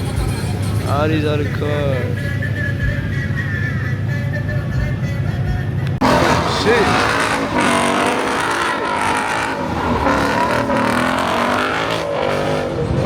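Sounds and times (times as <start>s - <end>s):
car engine at high revs: 5.8s - 13.0s.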